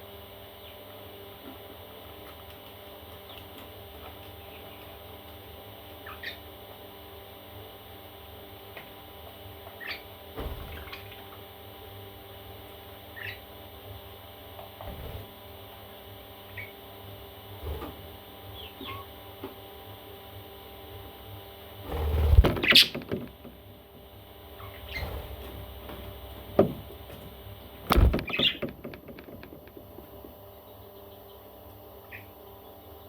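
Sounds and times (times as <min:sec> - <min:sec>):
parrot chicks chirping: 0:05.8 - 0:06.5, 0:09.7 - 0:10.1, 0:10.7 - 0:11.4, 0:13.1 - 0:13.5, 0:16.5 - 0:16.8, 0:18.5 - 0:19.2, 0:22.4 - 0:23.2, 0:24.5 - 0:25.5, 0:27.9 - 0:33.0
rustling and knocking: 0:22.3 - 0:23.7, 0:25.4 - 0:30.4.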